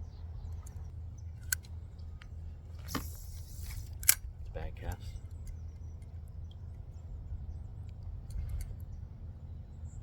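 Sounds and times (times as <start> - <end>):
light clicks: 7.8 - 9.0.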